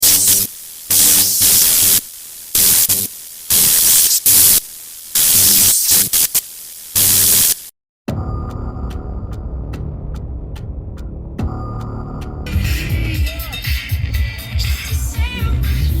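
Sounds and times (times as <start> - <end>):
loud static hiss: 0.0 - 7.8, 12.5 - 16.0
music: 8.1 - 16.0.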